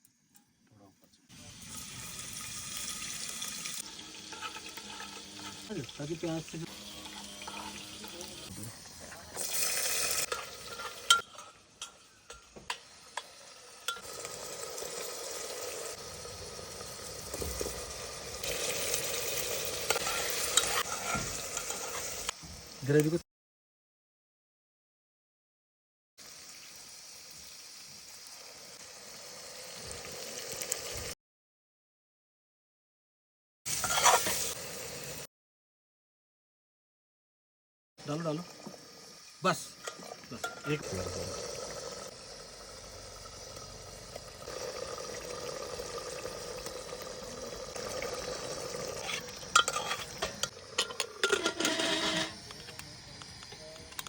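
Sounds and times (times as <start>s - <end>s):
curry sizzling in a pan: 1.3s - 23.2s, 26.2s - 31.2s, 33.7s - 35.3s, 38.0s - 54.0s
gravy bubbling in a hot pan: 38.3s - 51.4s.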